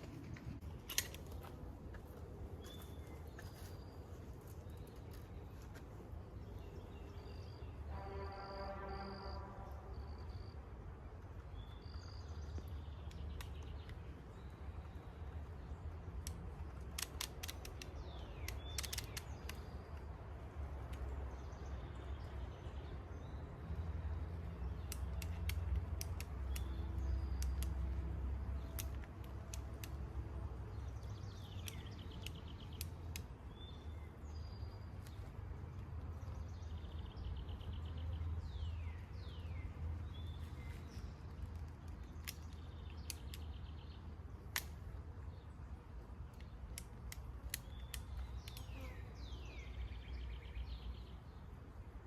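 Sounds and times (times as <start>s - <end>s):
sharp clicks: 0.0s - 3.6s, 11.5s - 21.1s, 24.4s - 36.8s, 39.2s - 45.4s, 46.0s - 48.8s
birds chirping: 0.0s - 52.0s.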